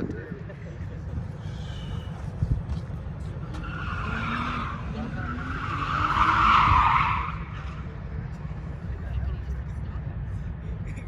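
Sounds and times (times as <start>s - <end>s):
car tyres screeching: 1.1s - 8.8s.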